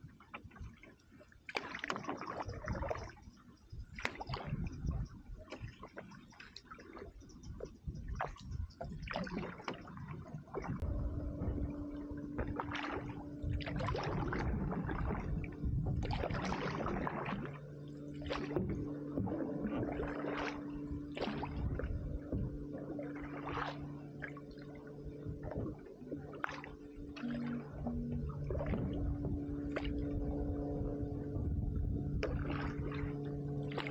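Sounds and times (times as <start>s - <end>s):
canoe paddle splashing water: 0.0s - 3.2s, 3.9s - 4.7s, 5.4s - 31.4s, 32.1s - 33.9s
faint steady hum: 10.5s - 33.9s.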